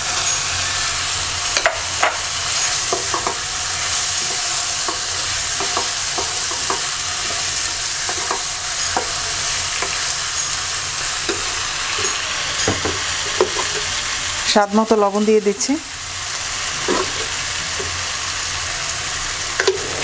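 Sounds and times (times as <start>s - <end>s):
fish sizzling in hot oil: 0.0s - 20.0s
spatula scraping a pot: 16.7s - 17.9s.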